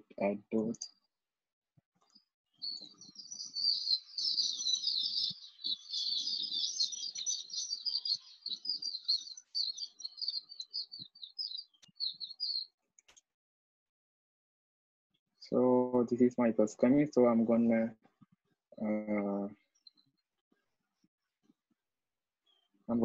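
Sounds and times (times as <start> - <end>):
birds chirping rapidly: 2.5 - 13.1.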